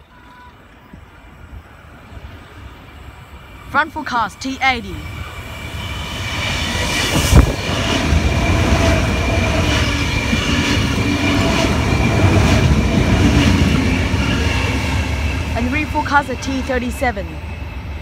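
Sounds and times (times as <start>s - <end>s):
train wheels rumbling on rail: 4.9s - 18.0s.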